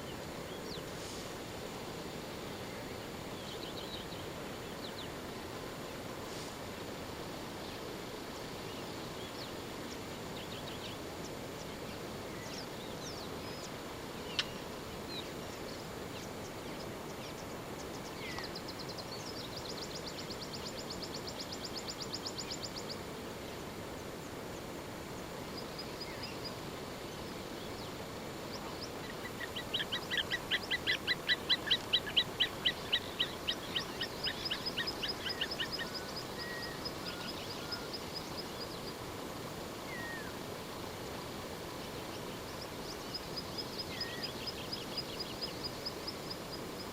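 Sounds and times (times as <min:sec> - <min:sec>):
outdoor background hiss: 0:00.0 - 0:46.9
rapid repeated bird calls: 0:08.7 - 0:23.6, 0:25.2 - 0:46.9
wild birds calling: 0:27.2 - 0:39.0, 0:39.8 - 0:40.4.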